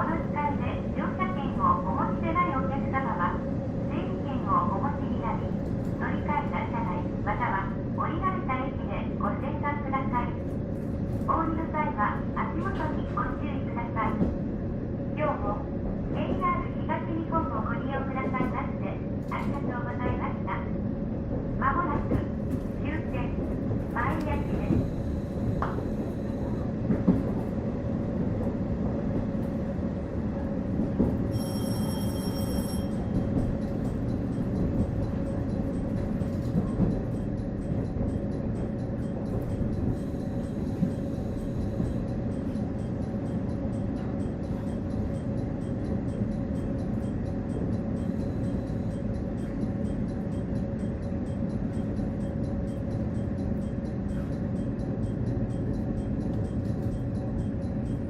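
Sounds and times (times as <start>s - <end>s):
railcar engine and wheel rumble: 0.0s - 58.0s
high ringing tone: 31.3s - 58.0s.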